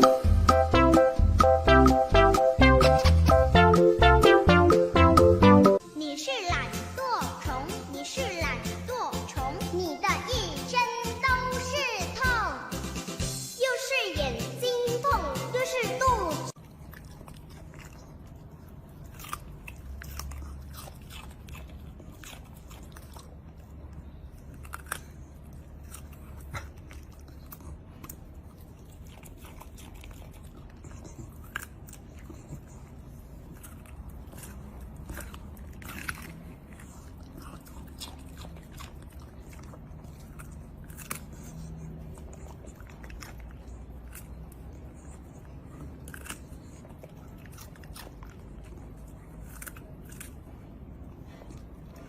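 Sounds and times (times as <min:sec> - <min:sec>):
chewing crunchy food: 0:16.5 - 0:52.0.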